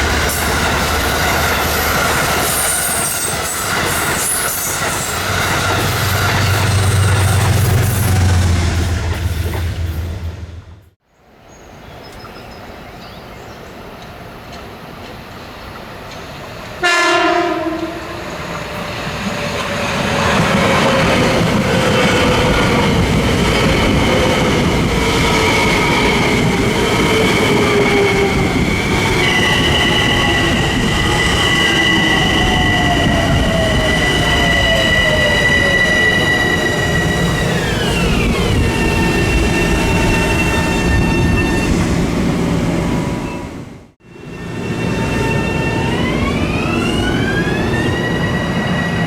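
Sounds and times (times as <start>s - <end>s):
high steady train whine: 0.0s - 11.4s, 13.6s - 49.0s
train horn blast: 16.8s - 18.4s.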